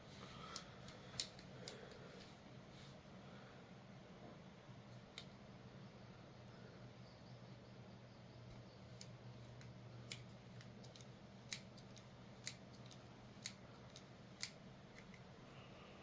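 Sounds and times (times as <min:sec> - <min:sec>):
pliers clicking open and closed: 0:00.9 - 0:01.8, 0:09.0 - 0:15.2.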